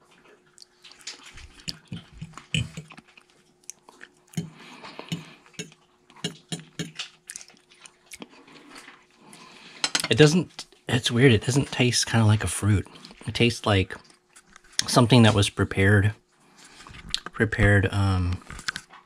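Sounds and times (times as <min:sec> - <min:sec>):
person chewing soft food: 0:00.0 - 0:09.8, 0:12.8 - 0:13.3, 0:16.4 - 0:17.3.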